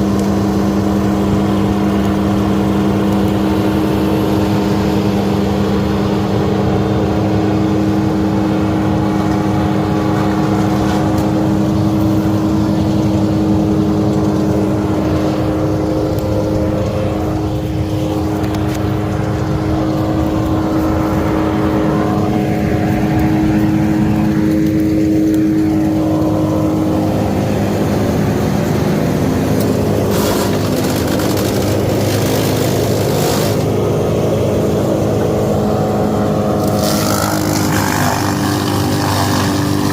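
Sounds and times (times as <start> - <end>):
sharp crackles: 29.4 - 33.8, 36.5 - 39.9
chainsaw cutting into wood: 29.7 - 33.8, 36.5 - 39.9.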